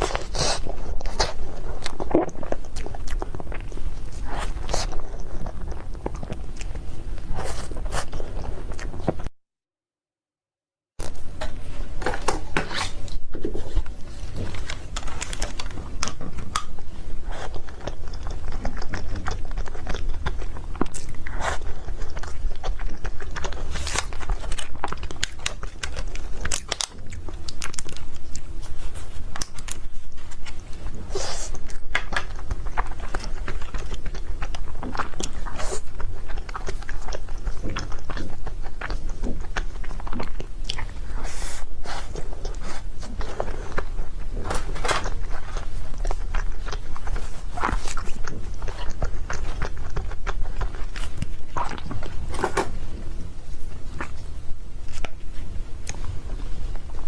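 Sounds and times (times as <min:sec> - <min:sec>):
cake being chewed: 0:00.0 - 0:09.3, 0:11.0 - 0:57.0.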